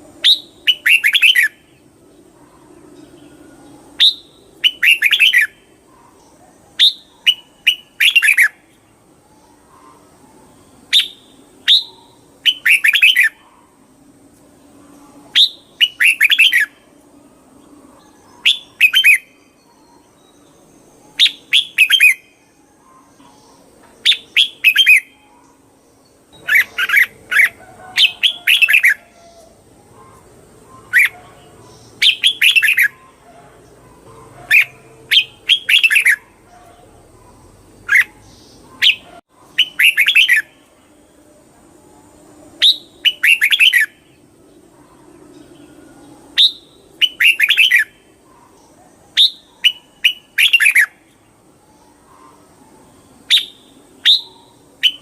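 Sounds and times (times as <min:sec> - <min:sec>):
bird singing whistled phrases: 0:00.2 - 0:01.6, 0:04.0 - 0:05.6, 0:06.8 - 0:08.6, 0:10.9 - 0:13.4, 0:15.3 - 0:16.8, 0:18.4 - 0:20.4, 0:21.1 - 0:23.1, 0:24.1 - 0:25.4, 0:32.0 - 0:33.0, 0:34.5 - 0:36.2, 0:38.8 - 0:40.6, 0:42.6 - 0:44.0, 0:46.4 - 0:48.0, 0:49.2 - 0:51.0, 0:53.3 - 0:55.0.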